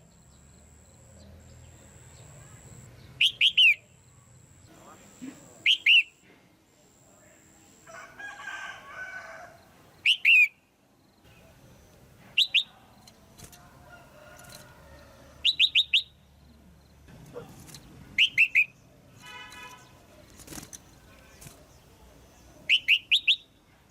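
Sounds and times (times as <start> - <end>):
bulbul calling: 0.0 - 6.2, 10.0 - 10.7, 15.4 - 16.3, 18.2 - 18.8, 22.6 - 23.6
soft jumbled bird chatter: 0.0 - 7.5, 8.2 - 23.9.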